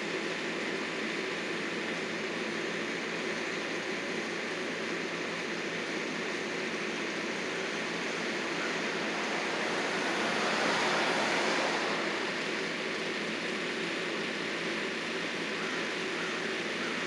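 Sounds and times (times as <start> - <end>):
machine engine running: 5.7 - 13.8.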